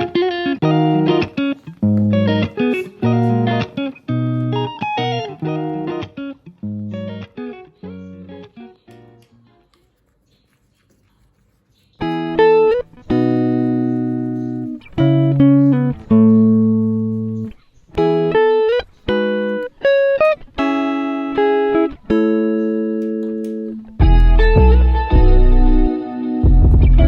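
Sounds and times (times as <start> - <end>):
instrumental music with struck chords: 22.6 - 27.0.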